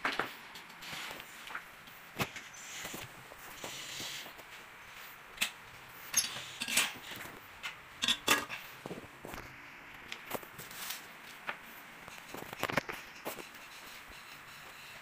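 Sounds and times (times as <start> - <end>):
hard objects clinking and knocking: 8.0 - 9.0.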